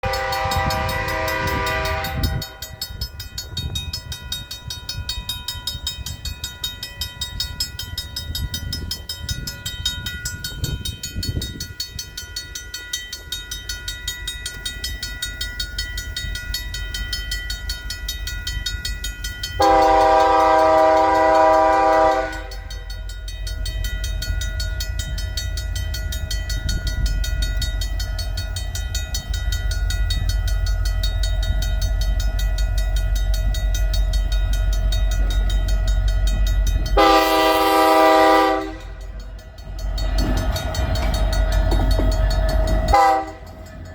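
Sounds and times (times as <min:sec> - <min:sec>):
train horn blasts: 0:00.0 - 0:02.8, 0:19.6 - 0:22.9, 0:37.0 - 0:39.2, 0:42.4 - 0:43.6
low rumble of train: 0:00.0 - 0:43.9.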